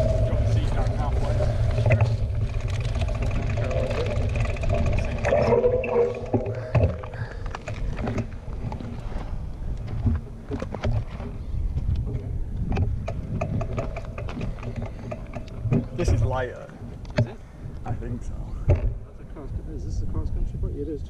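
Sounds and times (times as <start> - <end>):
wind rumbling on microphone: 0.0 - 21.0
mountain bike clicks and knocks: 1.0 - 16.4.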